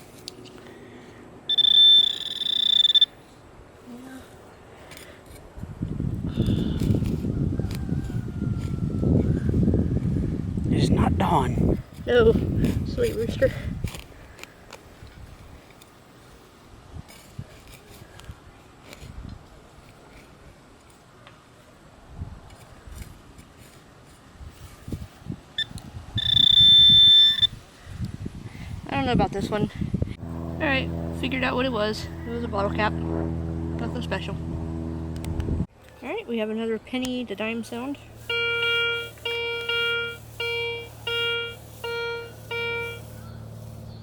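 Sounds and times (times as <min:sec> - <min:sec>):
high-pitched electronic tone: 0:01.5 - 0:03.1, 0:25.6 - 0:27.5, 0:38.3 - 0:43.4
metal detector beep: 0:01.5 - 0:03.2, 0:25.6 - 0:27.6, 0:38.3 - 0:43.3
soil scraping and rustling: 0:03.1 - 0:09.6, 0:10.8 - 0:26.6, 0:37.1 - 0:44.0.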